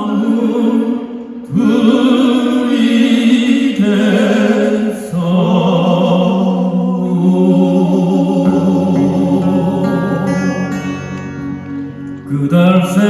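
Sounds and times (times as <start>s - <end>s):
male vocal quartet singing: 0.0s - 13.0s
acoustic guitar: 5.1s - 13.0s.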